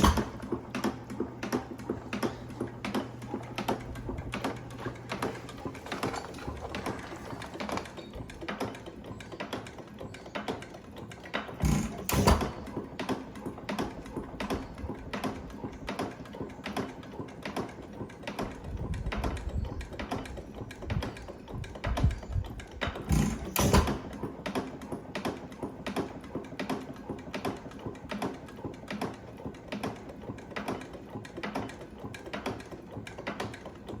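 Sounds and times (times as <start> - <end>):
engine valve gear clicking: 11.1 - 26.0.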